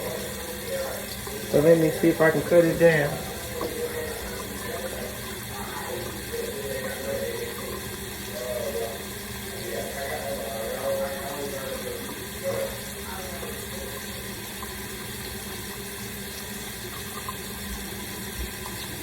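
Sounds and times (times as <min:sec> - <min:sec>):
faint voice: 0:00.0 - 0:14.3
tap water running into sink: 0:00.0 - 0:19.0.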